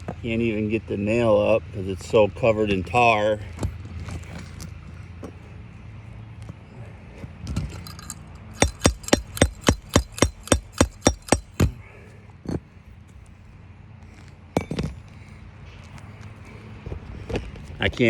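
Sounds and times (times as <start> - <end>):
hammer tapping metal: 7.9 - 11.8.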